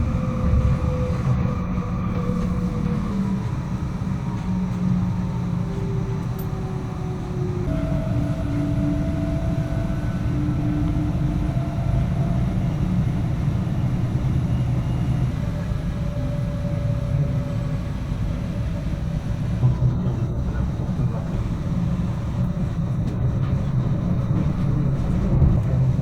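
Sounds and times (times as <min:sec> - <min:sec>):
faint whining tones: 0:00.0 - 0:19.1
train rumbling: 0:00.0 - 0:26.0.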